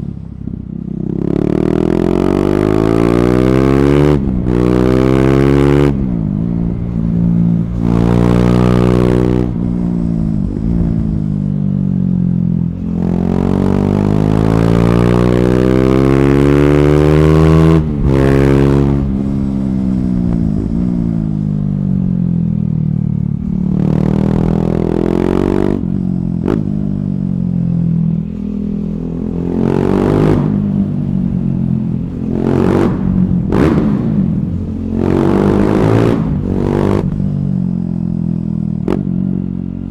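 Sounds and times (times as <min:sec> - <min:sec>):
motorcycle engine revving: 0:00.0 - 0:39.9
loud exhaust bursts: 0:28.4 - 0:37.3.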